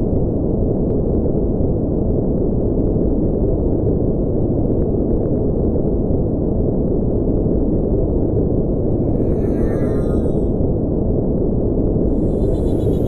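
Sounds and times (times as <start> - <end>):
deep rumbling engine drone: 4.6 - 13.0.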